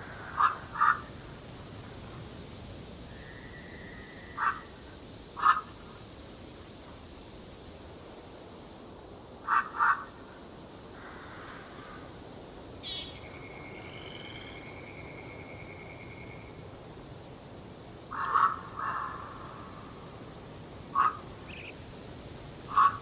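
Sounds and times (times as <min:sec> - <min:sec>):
wild birds calling: 0:00.0 - 0:01.3, 0:03.1 - 0:06.0, 0:09.4 - 0:10.3, 0:12.8 - 0:16.7, 0:18.0 - 0:21.9, 0:22.6 - 0:23.0
background hiss: 0:00.0 - 0:23.0.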